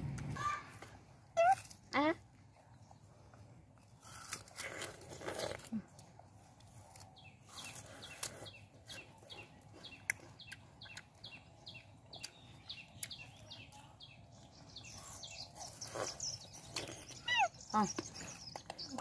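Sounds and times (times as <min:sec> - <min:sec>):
bird chirping: 0:06.8 - 0:19.0.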